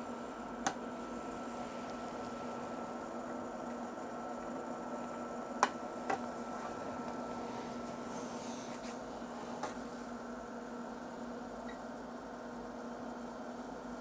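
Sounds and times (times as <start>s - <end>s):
electrical hum and hiss: 0.0s - 14.0s.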